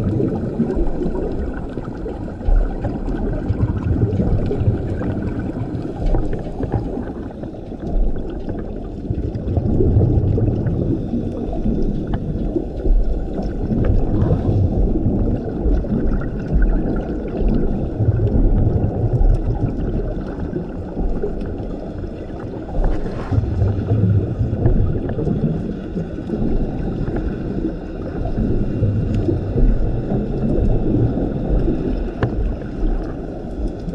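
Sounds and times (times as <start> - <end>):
exhaled bubbles underwater: 0.0 - 33.9
underwater regulator breathing: 10.6 - 15.9, 21.8 - 33.8.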